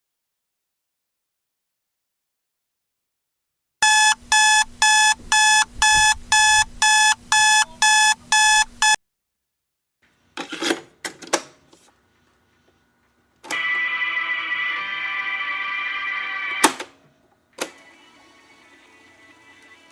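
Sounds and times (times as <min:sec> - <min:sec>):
electronic alarm beeping: 0:03.8 - 0:09.0.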